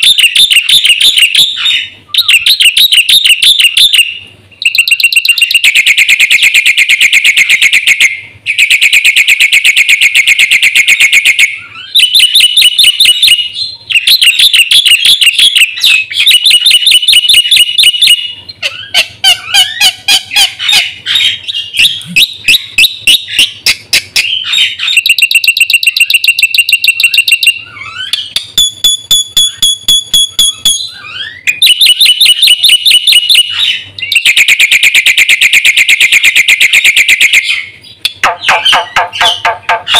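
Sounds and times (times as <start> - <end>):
myna singing rattling trills: 0.0 - 39.9.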